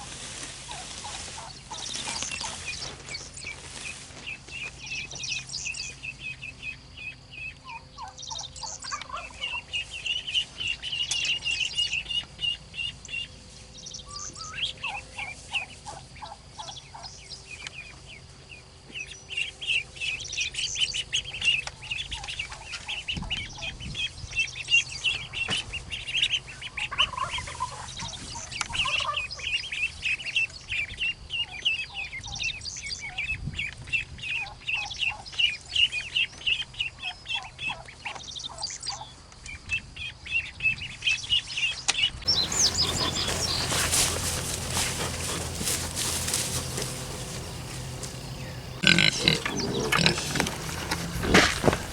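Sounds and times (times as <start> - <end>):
birds chirping: 0.7 - 6.0, 42.3 - 51.9
lower bird calls: 42.3 - 51.9.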